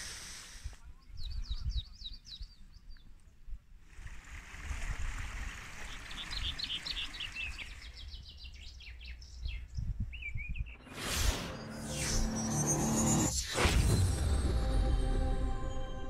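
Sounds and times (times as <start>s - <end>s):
birdsong chirps: 0.8s - 3.6s, 5.5s - 13.1s.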